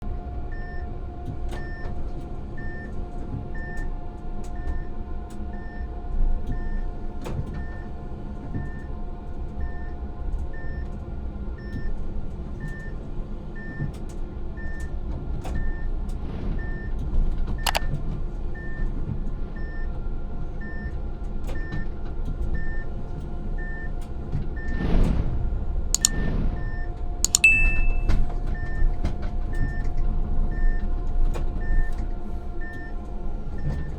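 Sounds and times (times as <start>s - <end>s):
clicks: 17.7s - 17.9s, 26.0s - 26.2s, 27.3s - 28.1s
short high beeps: 27.3s - 28.2s.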